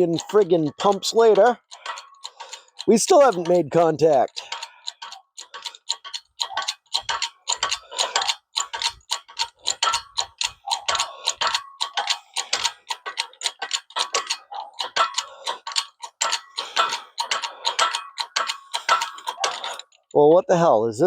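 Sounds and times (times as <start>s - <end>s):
hydraulic press pump clicking: 4.4s - 20.0s.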